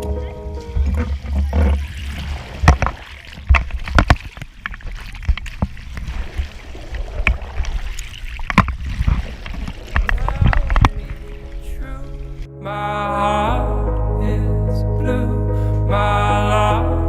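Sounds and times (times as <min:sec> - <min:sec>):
water splashing and lapping: 0:00.0 - 0:12.5
sharp knocks and clicks: 0:02.6 - 0:06.1, 0:08.4 - 0:11.0
low rumble: 0:09.8 - 0:17.0.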